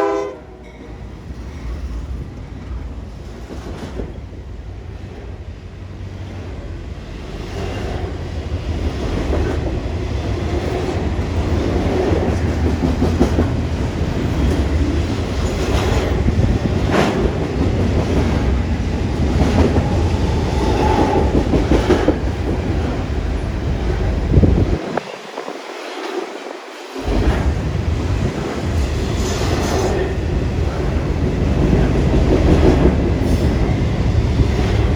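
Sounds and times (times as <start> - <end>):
freight train rumbling past: 0.0 - 34.9
wheels clacking on rail joints: 7.2 - 34.9.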